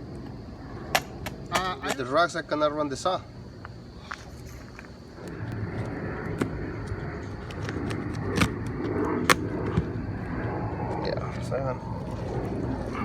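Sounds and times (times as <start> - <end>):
engine rumbling: 3.3 - 13.0.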